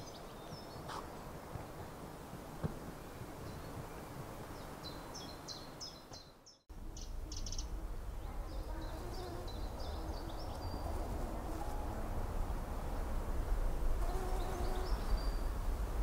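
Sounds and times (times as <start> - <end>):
small birds chirping: 0.0 - 12.0, 14.0 - 15.6
low background rumble: 6.7 - 16.0.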